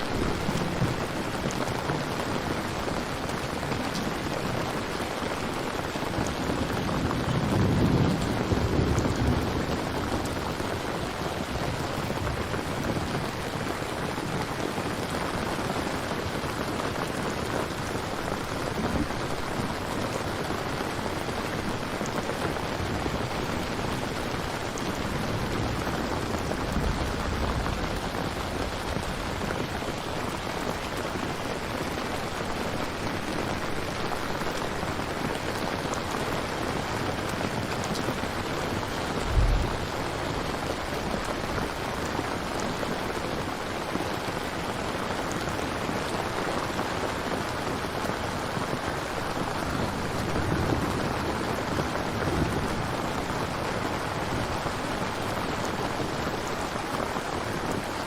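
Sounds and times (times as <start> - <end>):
steady rain falling: 0.0 - 58.0
low thump: 39.2 - 40.0.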